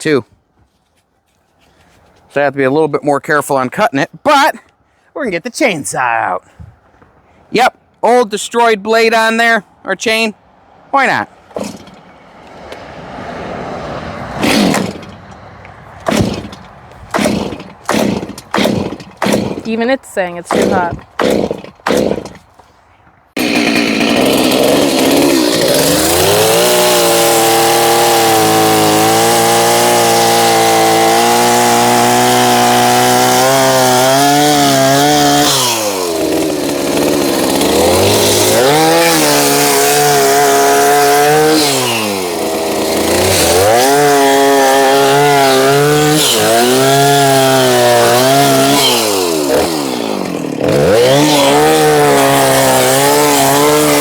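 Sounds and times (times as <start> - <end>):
chainsaw revving and cutting: 11.6 - 12.0, 13.6 - 15.2, 16.0 - 19.8, 20.4 - 22.4, 23.4 - 54.0.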